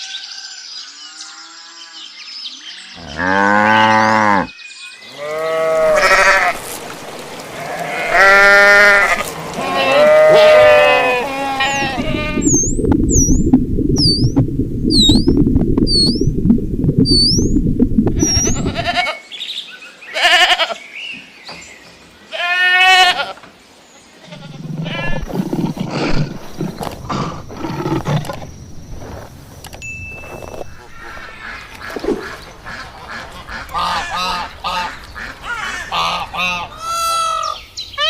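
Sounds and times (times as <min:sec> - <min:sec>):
livestock bleating: 0:05.1 - 0:06.6, 0:07.5 - 0:12.6, 0:18.5 - 0:19.2, 0:20.1 - 0:20.8, 0:22.3 - 0:23.4
low rumbling noise: 0:08.9 - 0:19.0
short high chirps: 0:14.0 - 0:16.3, 0:17.1 - 0:17.6.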